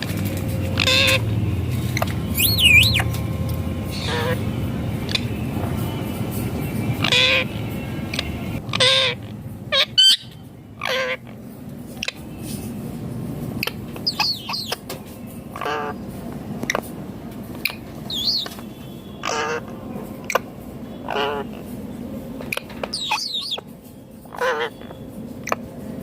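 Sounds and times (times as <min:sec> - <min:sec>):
low background rumble: 0:00.0 - 0:26.0
parakeet harsh calls: 0:00.6 - 0:01.3, 0:02.0 - 0:03.1, 0:03.9 - 0:05.4, 0:07.0 - 0:11.4, 0:13.6 - 0:14.8, 0:15.5 - 0:16.0, 0:17.6 - 0:21.7, 0:22.4 - 0:23.6, 0:24.2 - 0:25.6
high chirps and whistles: 0:02.2 - 0:03.2, 0:17.6 - 0:19.2, 0:22.9 - 0:23.7.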